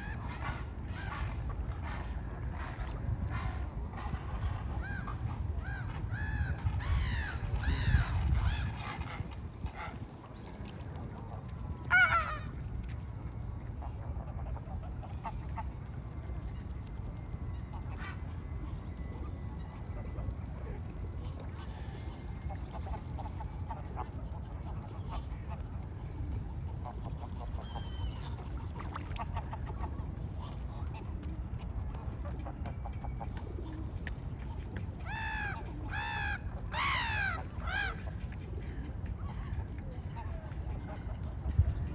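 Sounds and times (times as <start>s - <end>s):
harsh bird calls: 35.1s - 38.0s.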